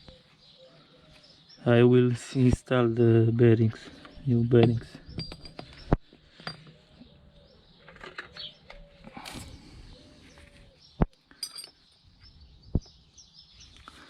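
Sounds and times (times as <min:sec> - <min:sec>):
bird cooing softly: 0:00.0 - 0:01.4, 0:06.7 - 0:11.1.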